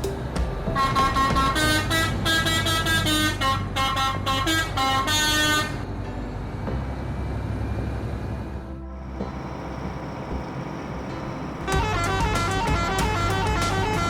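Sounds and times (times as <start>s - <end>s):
musical vehicle horn: 0.7s - 5.9s, 11.6s - 14.0s
steady low rumble: 5.6s - 13.9s.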